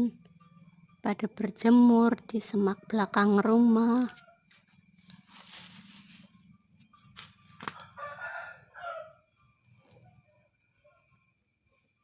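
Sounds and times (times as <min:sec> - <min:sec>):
rooster crowing: 0:07.6 - 0:09.3.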